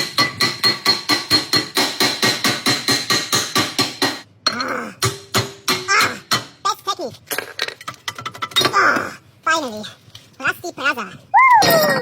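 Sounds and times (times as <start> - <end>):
rapid hammering on metal: 0.0 - 4.2, 5.0 - 6.6.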